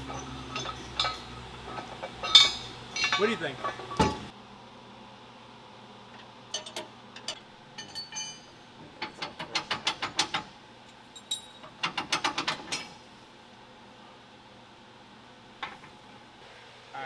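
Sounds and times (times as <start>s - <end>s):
ratchet clicking: 0.0s - 4.3s
ringing metal clinks: 0.0s - 4.3s, 7.8s - 8.6s, 11.2s - 11.7s.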